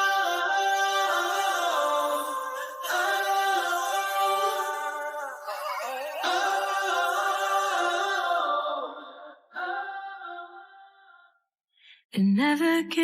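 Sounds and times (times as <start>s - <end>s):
person singing unaccompanied: 0.0s - 8.7s.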